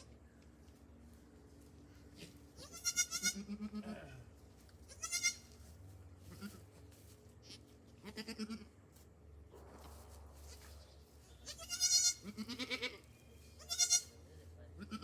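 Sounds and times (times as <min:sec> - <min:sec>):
goat kid bleating: 0:02.2 - 0:04.2, 0:04.8 - 0:05.6, 0:06.3 - 0:06.7, 0:07.4 - 0:08.8, 0:11.4 - 0:14.2, 0:14.8 - 0:15.0.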